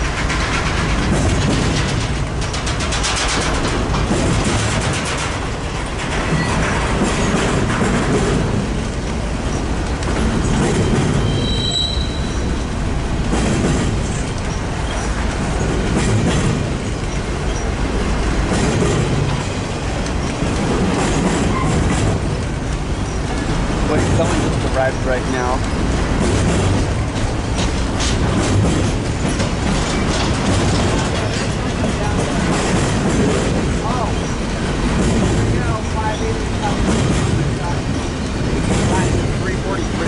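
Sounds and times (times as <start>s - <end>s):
freight train rolling past: 0.0s - 40.0s
wheels clacking over rail joints: 0.0s - 40.0s
high wheel squeal: 10.8s - 12.7s.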